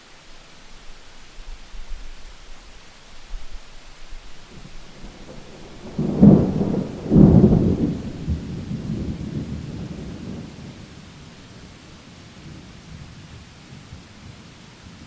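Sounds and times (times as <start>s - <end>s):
steady rain: 0.0s - 15.0s
thunderclap rumbling: 4.5s - 14.5s.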